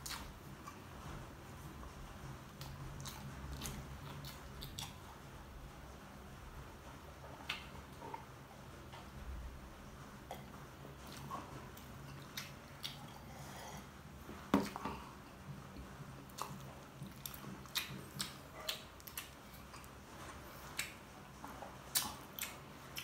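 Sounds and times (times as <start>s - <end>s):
wet chewing and mouth smacks: 2.6s - 5.0s, 10.3s - 13.3s, 16.3s - 23.0s.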